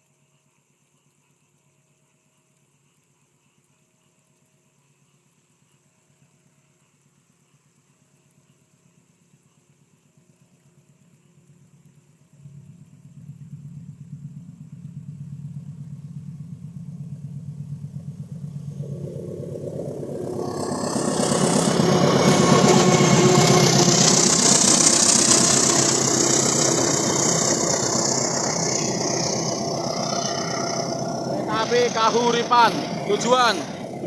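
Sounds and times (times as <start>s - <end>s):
diesel locomotive engine roar: 12.4s - 34.0s.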